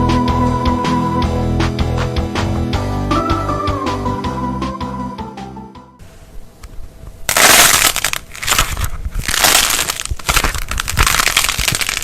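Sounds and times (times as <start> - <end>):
brittle material crunching: 7.3 - 12.0.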